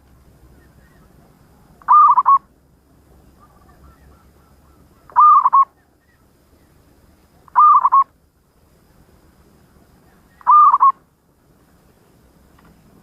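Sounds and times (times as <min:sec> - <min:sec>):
dove cooing: 0:00.6 - 0:02.5, 0:03.4 - 0:06.2, 0:07.5 - 0:08.1, 0:10.0 - 0:11.0.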